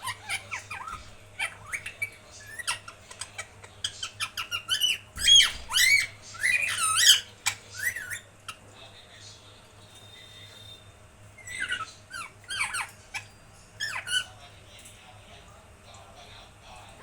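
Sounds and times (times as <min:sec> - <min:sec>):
parrot squawking and chirping: 0:00.0 - 0:08.7, 0:11.3 - 0:14.4.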